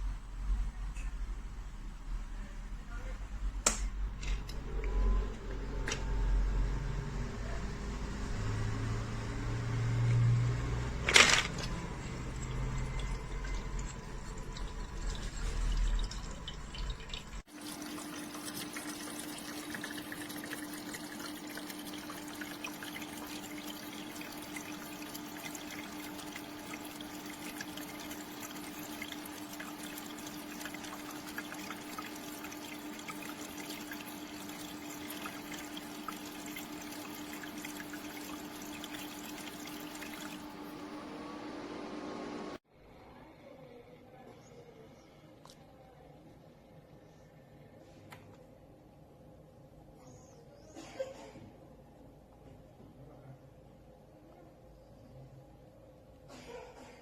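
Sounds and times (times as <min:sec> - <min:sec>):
ice maker humming: 0:04.2 - 0:42.6
water trickling: 0:11.7 - 0:41.0.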